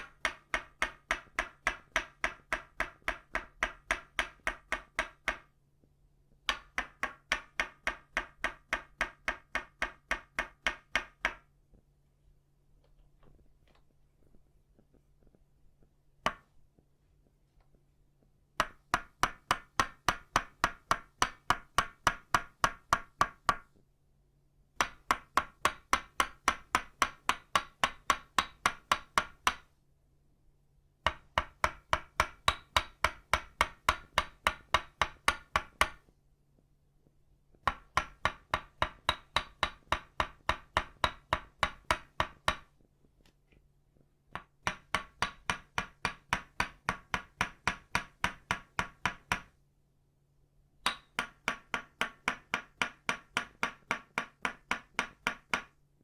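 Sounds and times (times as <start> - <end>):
wooden mallet knocking: 0.0 - 5.5, 6.4 - 11.5, 16.2 - 16.5, 18.6 - 23.7, 24.8 - 29.7, 31.0 - 36.1, 37.6 - 42.8, 44.3 - 49.6, 50.8 - 55.8.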